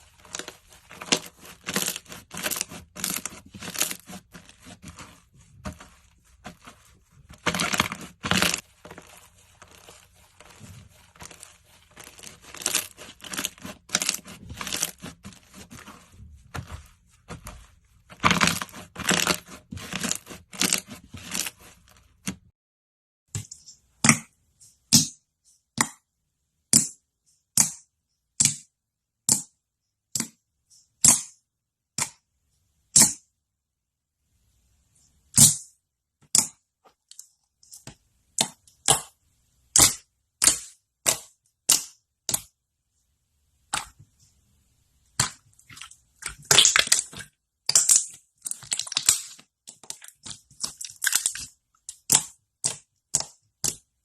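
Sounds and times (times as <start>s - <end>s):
slime crackling and popping: 5.9s - 16.7s, 46.3s - 53.8s.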